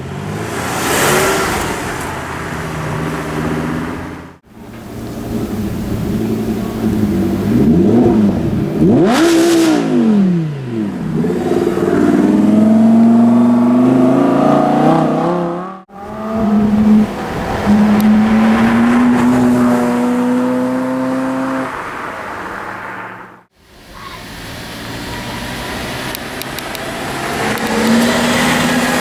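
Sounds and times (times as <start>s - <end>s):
car engine revving and accelerating: 0.0s - 23.4s, 24.4s - 29.0s.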